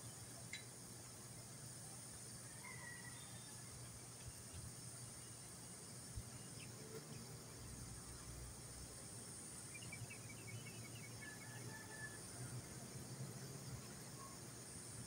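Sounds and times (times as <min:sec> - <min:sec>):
high-pitched hiss: 0:00.0 - 0:15.0
bird chirping: 0:09.6 - 0:11.6.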